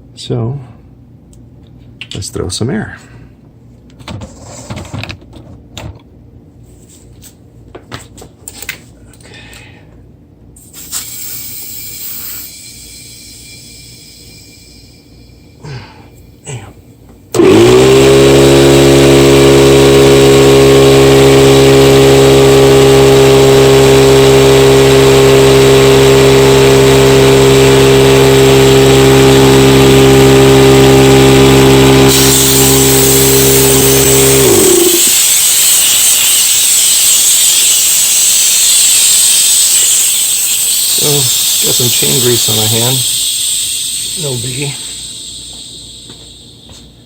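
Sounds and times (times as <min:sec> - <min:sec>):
air compressor motor hum: 0:08.4 - 0:47.0
air hissing: 0:10.6 - 0:47.0.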